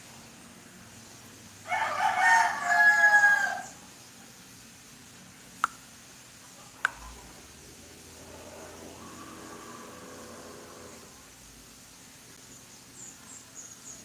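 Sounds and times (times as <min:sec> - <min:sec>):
rooster crowing: 0:01.6 - 0:03.8, 0:06.6 - 0:11.3
sharp clicks: 0:05.6 - 0:05.8.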